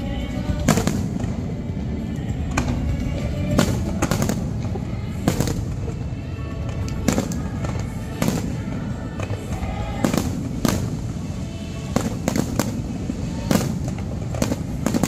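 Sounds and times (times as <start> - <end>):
background music: 0.0 - 15.0
firework shells bursting: 3.5 - 6.0, 6.7 - 15.0.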